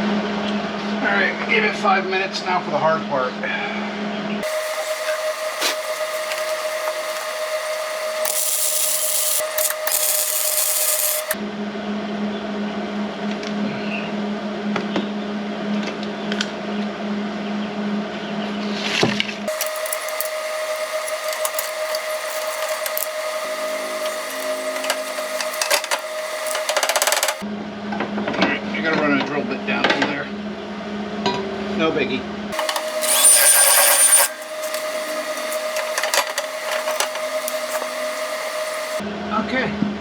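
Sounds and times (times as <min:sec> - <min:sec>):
drill bit scraping metal: 0:04.4 - 0:11.4, 0:19.5 - 0:27.4, 0:32.6 - 0:39.0
electric drill whining: 0:04.4 - 0:11.4, 0:19.5 - 0:27.4, 0:32.6 - 0:39.0
steady high hum: 0:04.4 - 0:11.4, 0:19.5 - 0:27.4, 0:32.6 - 0:39.0
welding arc crackling and sizzling: 0:04.4 - 0:11.4, 0:19.5 - 0:27.4, 0:32.6 - 0:39.0.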